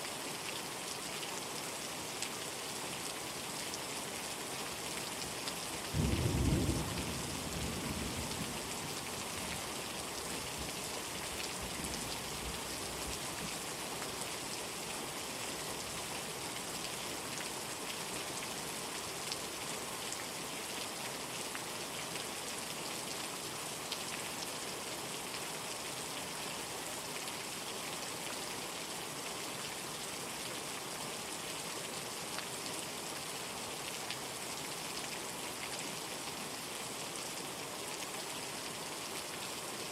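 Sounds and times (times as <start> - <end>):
rain falling: 0.0 - 39.9
low rumble of thunder: 6.0 - 8.9.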